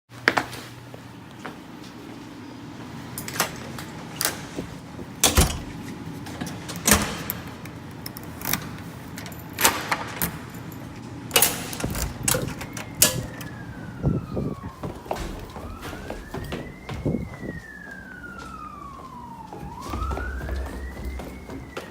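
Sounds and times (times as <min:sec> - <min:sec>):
emergency siren wailing: 0:11.0 - 0:21.9.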